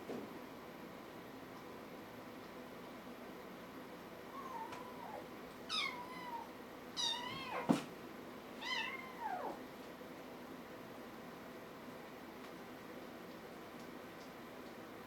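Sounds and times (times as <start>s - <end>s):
kitten meowing: 4.4s - 7.7s, 8.6s - 9.6s.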